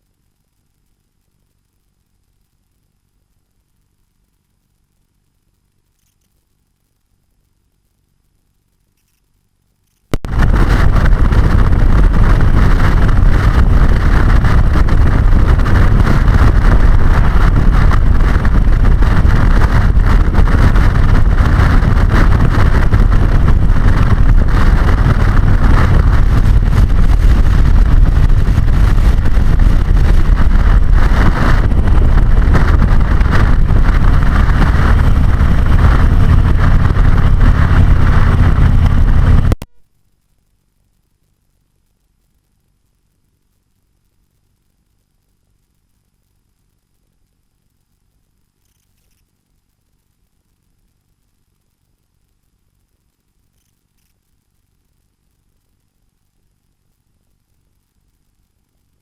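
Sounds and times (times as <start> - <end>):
motorcycle engine drone: 0.0 - 59.0
wind rush over microphone: 10.1 - 39.7.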